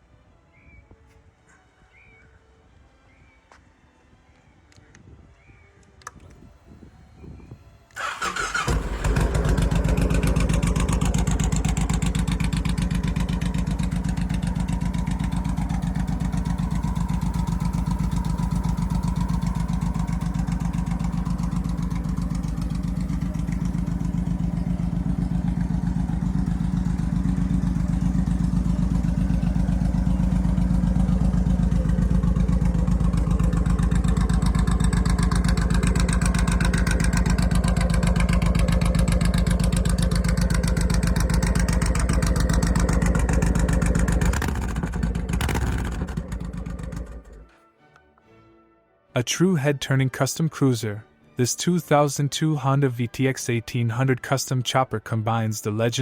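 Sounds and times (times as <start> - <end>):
motorcycle engine cranking: 8.0 - 47.5
motorcycle engine idling: 8.0 - 47.5.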